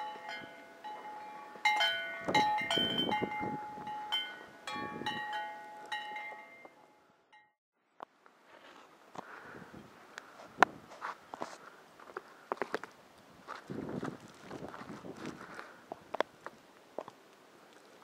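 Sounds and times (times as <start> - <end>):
wind chimes ringing: 0.0 - 7.6.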